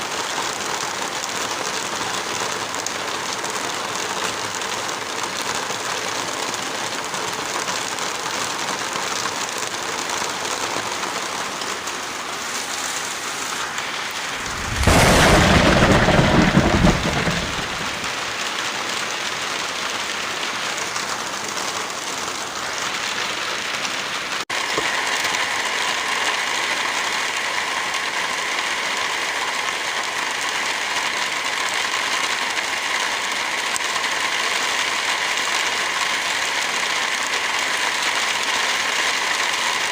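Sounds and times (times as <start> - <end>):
heavy rain falling: 0.0 - 39.9
deep rush: 14.2 - 18.2.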